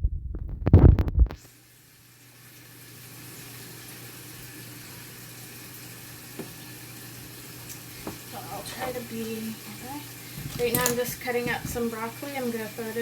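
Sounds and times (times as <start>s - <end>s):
phone microphone handling thumps: 0.3s - 1.4s.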